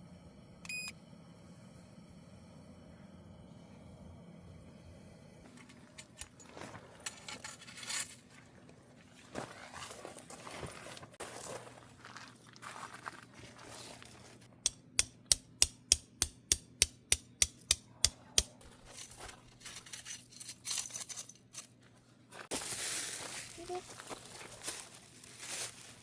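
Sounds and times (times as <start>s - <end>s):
rustling and handling noises: 5.5s - 14.5s, 18.6s - 26.0s.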